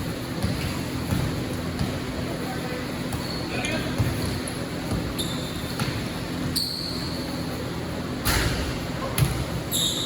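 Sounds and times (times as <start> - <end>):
basketball bouncing on court: 0.1 - 2.1, 3.0 - 6.8, 8.2 - 9.6.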